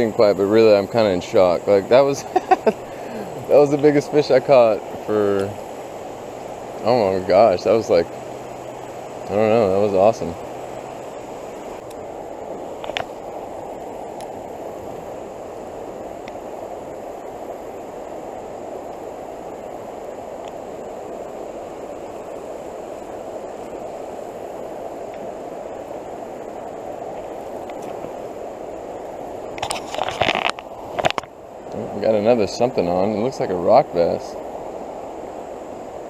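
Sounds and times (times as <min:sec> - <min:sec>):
floodwater rushing in a creek: 0:00.0 - 0:36.0.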